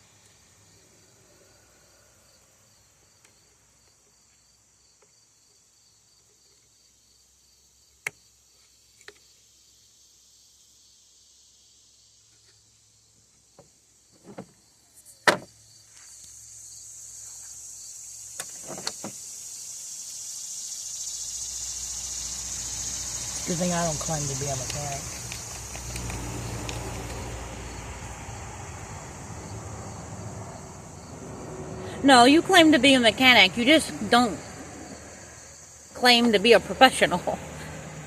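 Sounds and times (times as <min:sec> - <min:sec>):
crickets chirping: 0:00.0 - 0:38.0.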